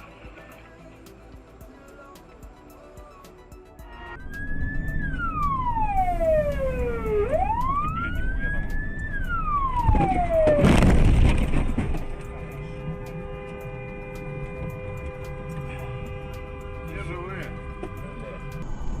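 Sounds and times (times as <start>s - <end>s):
road noise: 0.0s - 19.0s
emergency siren wailing: 4.0s - 11.7s.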